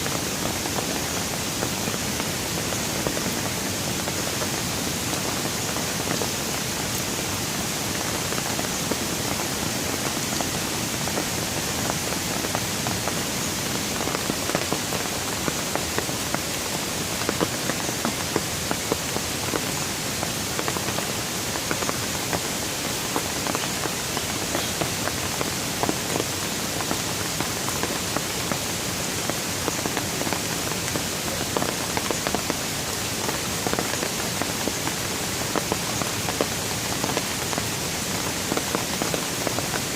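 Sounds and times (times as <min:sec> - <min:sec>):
steady rain with dripping taps: 0:00.0 - 0:39.9.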